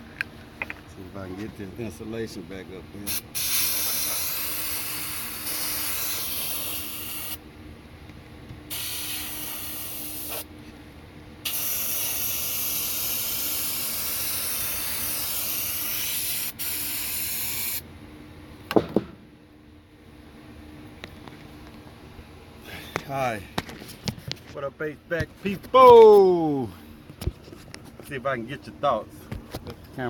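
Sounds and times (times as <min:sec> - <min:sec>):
aerosol spray can spraying: 0:03.1 - 0:07.4, 0:08.7 - 0:10.5, 0:11.5 - 0:17.8
loud knock: 0:18.7 - 0:19.2.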